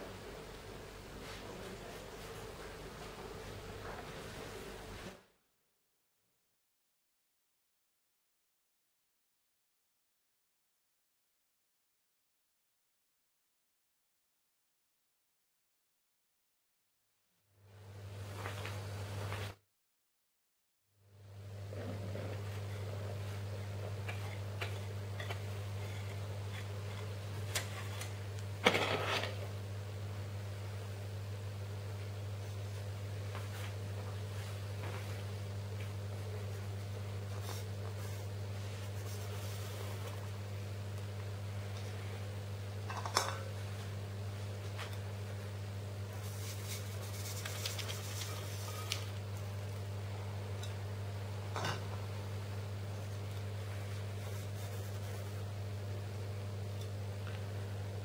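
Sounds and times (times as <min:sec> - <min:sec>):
steady low hum: 0:21.1 - 0:58.0
soft rustle: 0:46.2 - 0:49.1.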